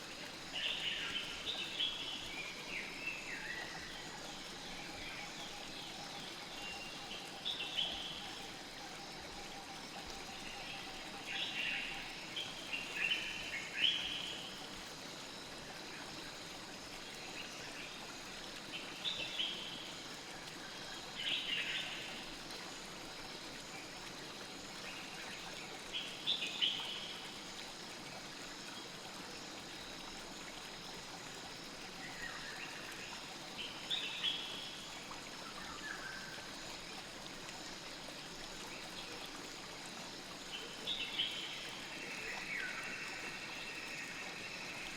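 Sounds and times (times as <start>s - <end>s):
stream flowing: 0.0s - 44.9s.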